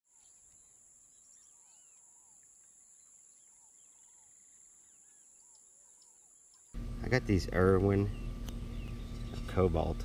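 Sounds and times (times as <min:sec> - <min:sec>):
birds chirping: 0:00.1 - 0:10.0
steady high-pitched whine: 0:06.8 - 0:10.0.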